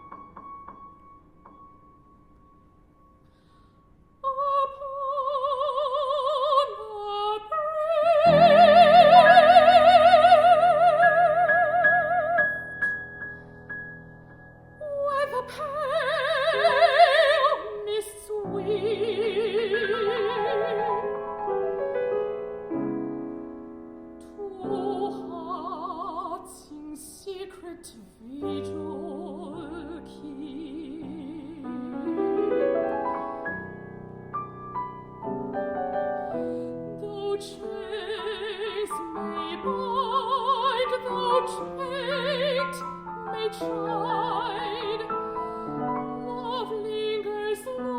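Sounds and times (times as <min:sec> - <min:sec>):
piano: 0:00.0 - 0:47.9
classical voice singing with vibrato: 0:04.2 - 0:13.1, 0:14.8 - 0:21.5, 0:24.2 - 0:32.6, 0:35.8 - 0:47.9.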